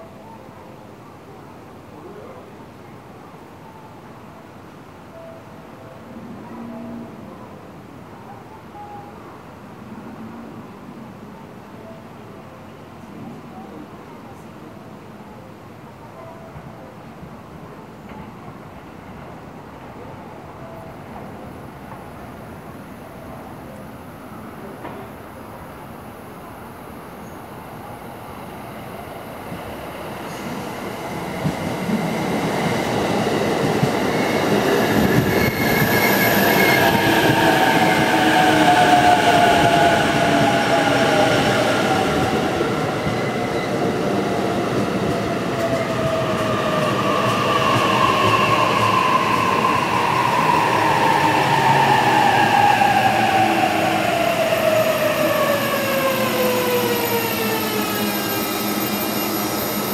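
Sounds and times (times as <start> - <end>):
electric train rumble: 29.3 - 59.9.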